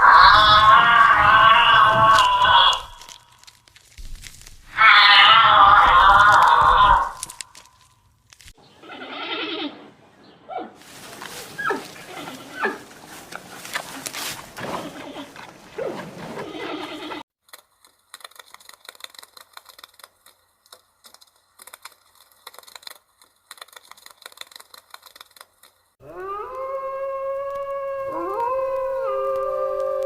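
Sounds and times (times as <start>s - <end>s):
canines howling together: 0.0s - 3.2s, 4.7s - 7.3s, 26.0s - 30.0s.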